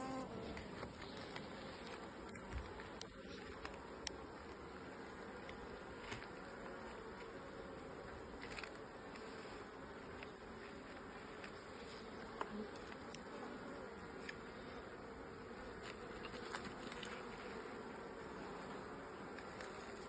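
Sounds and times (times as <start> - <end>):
honeybees humming: 0.0 - 20.0.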